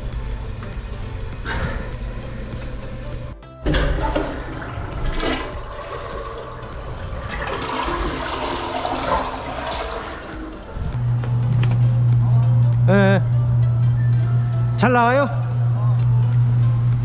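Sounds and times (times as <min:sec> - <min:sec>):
wastewater gurgling through drain pipe: 0:03.7 - 0:11.0.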